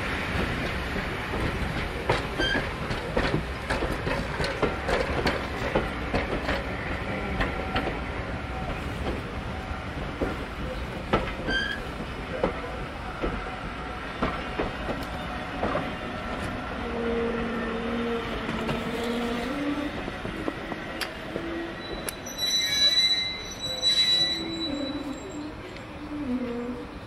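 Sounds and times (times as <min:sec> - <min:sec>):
train wheels knocking over rail joints: 0:00.4 - 0:06.7
high ringing wheel squeal: 0:21.8 - 0:25.6.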